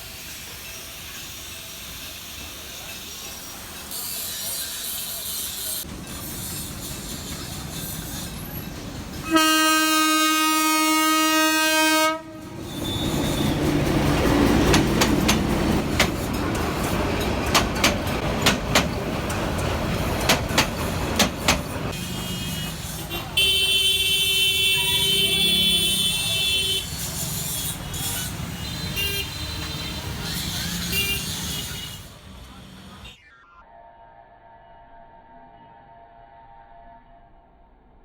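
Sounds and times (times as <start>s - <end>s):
train horn blast: 9.2s - 13.9s, 22.0s - 32.4s
wheels clacking over rail joints: 12.4s - 22.0s.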